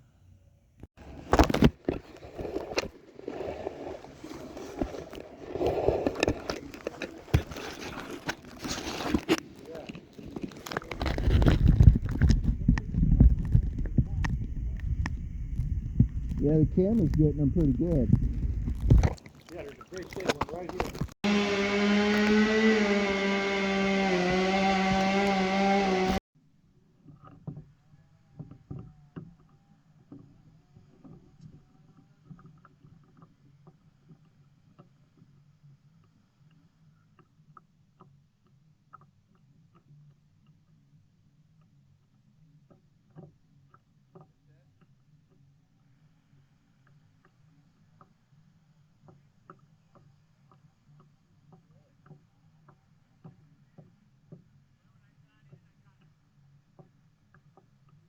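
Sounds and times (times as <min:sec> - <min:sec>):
light water sounds: 0:01.1 - 0:21.2.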